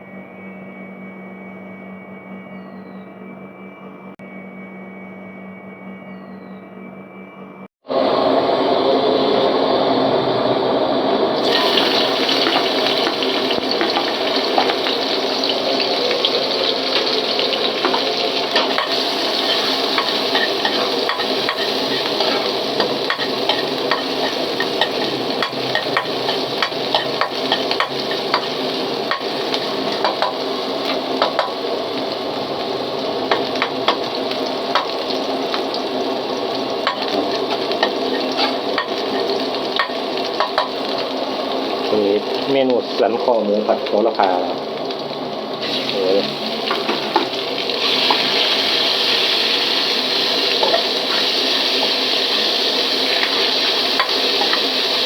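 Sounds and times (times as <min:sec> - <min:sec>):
food sizzling in a pan: 0:11.4 - 0:55.0
utensil scraping a pan: 0:17.8 - 0:30.3, 0:36.8 - 0:39.9.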